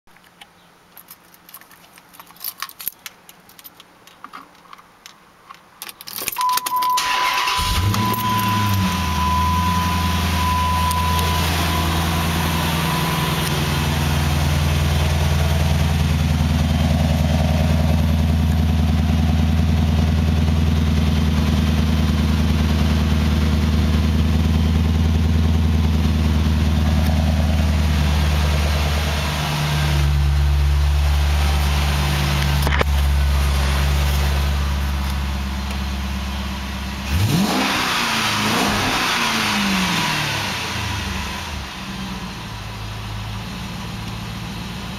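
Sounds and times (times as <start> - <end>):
keys jangling: 0.3 - 4.8, 5.5 - 6.8
car engine cranking and starting: 5.5 - 44.9
steady beep: 6.4 - 15.3
car engine idling: 7.0 - 44.9.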